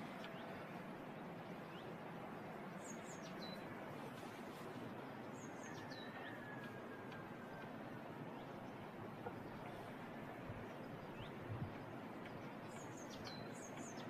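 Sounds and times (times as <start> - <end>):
steady rushing noise: 0.0 - 14.0
small birds chirping: 1.6 - 6.4, 7.5 - 14.0.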